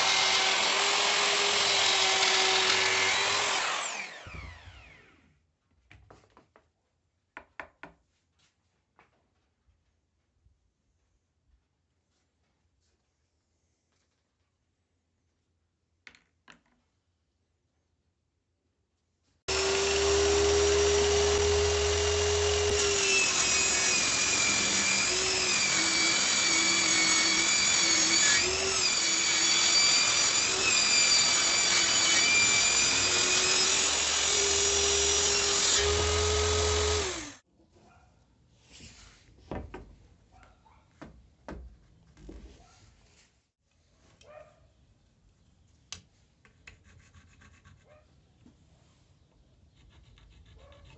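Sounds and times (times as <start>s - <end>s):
electric router whining: 0.0s - 5.1s, 19.5s - 37.4s.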